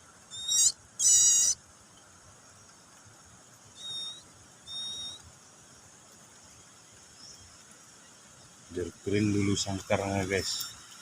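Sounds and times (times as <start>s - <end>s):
baby bird cheeping: 0.3s - 1.6s, 3.8s - 5.2s.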